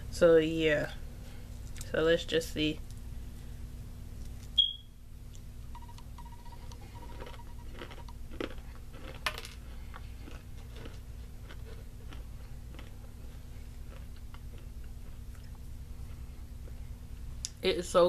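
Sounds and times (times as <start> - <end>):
low steady hum: 0.0 - 18.0
chewing crunchy granola: 6.3 - 17.3.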